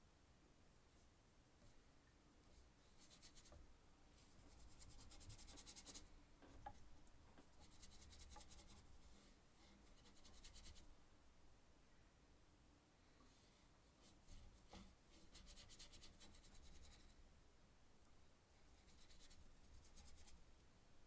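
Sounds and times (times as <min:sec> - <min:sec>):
paintbrush brushing on canvas: 0:02.5 - 0:03.6, 0:04.2 - 0:06.1, 0:07.5 - 0:10.9, 0:14.0 - 0:17.2, 0:18.7 - 0:20.4.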